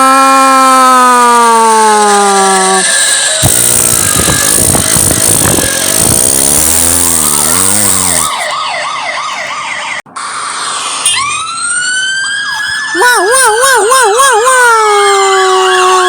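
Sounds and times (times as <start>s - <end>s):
siren wail: 0.0s - 16.0s
fast-warbling siren: 1.6s - 16.0s
rough noisy rush: 3.4s - 8.5s.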